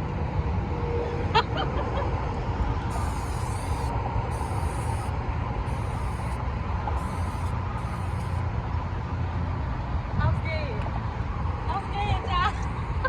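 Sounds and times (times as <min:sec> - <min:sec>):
steady low rumble: 0:00.0 - 0:12.0
aerosol spray can hissing: 0:02.9 - 0:06.4, 0:07.0 - 0:08.4.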